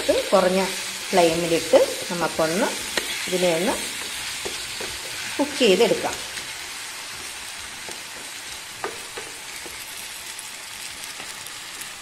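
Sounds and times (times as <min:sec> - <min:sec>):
food sizzling in oil: 0:00.0 - 0:12.0
wooden spatula knocking pot: 0:03.8 - 0:05.2, 0:07.2 - 0:09.8.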